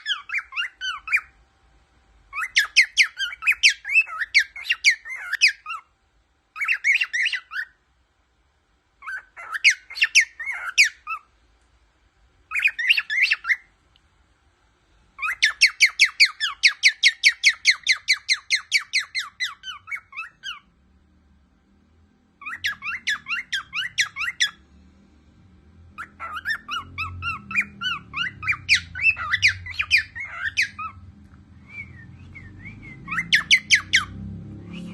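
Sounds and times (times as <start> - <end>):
cockatiel whistling and chirping: 0.0 - 1.3, 2.3 - 5.9, 6.5 - 7.8, 9.0 - 11.3, 12.5 - 13.7, 15.2 - 20.7, 22.4 - 24.6, 26.0 - 31.0, 31.6 - 34.9
faint low rumble: 0.2 - 34.9.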